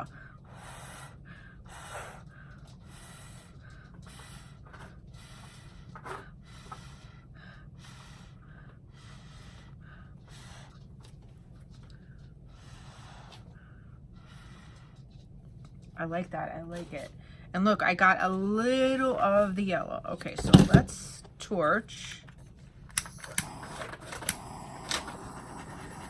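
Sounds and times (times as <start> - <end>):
steady low hum: 0.0 - 26.0
breath puffs through a straw: 12.5 - 15.2, 23.4 - 26.0.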